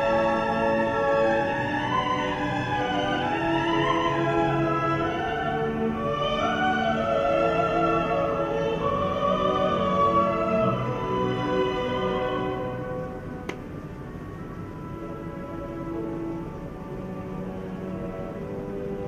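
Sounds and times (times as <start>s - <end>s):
operatic singing: 0.0s - 13.1s
instrumental accompaniment: 0.0s - 19.0s.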